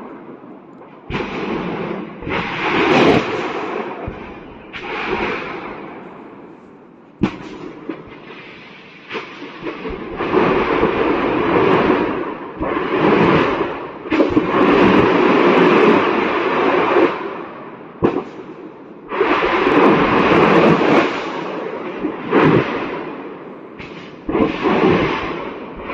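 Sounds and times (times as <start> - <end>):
dense crackling rumble: 0.0 - 25.9
sharp explosion blasts: 1.1 - 6.4, 7.2 - 17.4, 18.0 - 25.9.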